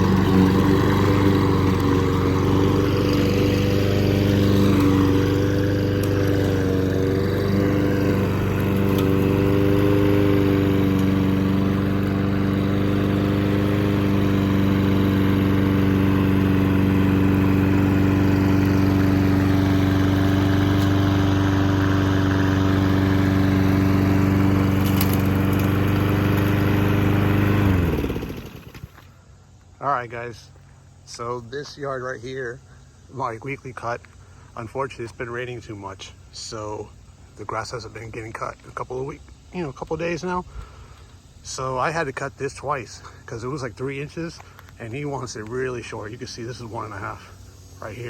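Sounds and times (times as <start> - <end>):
lawn mower engine running: 0.0 - 29.7, 39.4 - 48.0.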